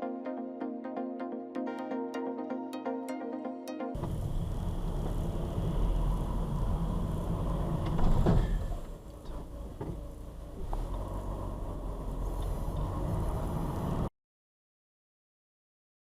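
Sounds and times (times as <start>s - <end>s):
electronic music: 0.0s - 4.0s
car interior road rumble: 4.0s - 14.1s.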